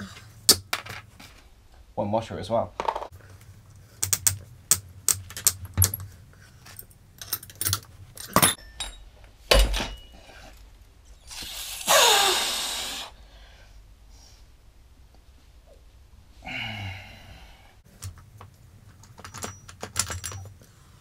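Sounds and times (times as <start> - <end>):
metallic clinks of spanners: 7.2 - 10.3.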